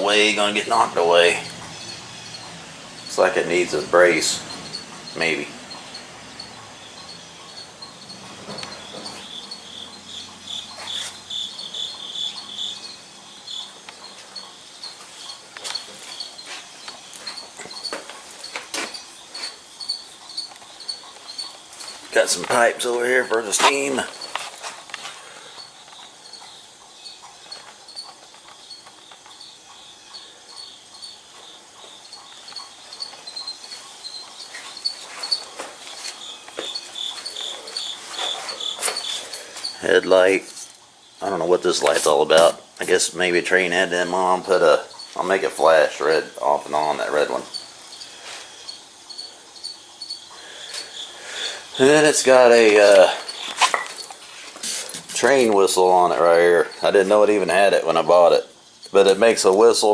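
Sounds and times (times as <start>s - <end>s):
insects chirping: 0.0s - 59.9s.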